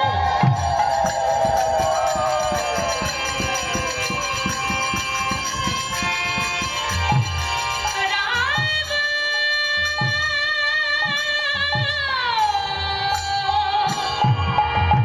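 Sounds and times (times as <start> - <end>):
fast percussion strokes: 0.0 - 11.7.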